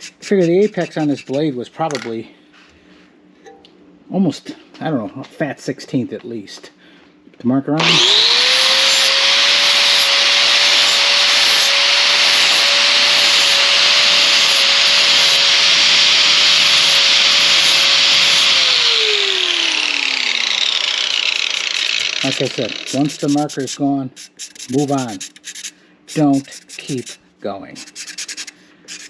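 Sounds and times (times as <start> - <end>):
sanding disc grinding metal blade: 0.0 - 1.6, 7.8 - 27.2, 27.8 - 29.0
power tool motor whine: 7.8 - 23.5.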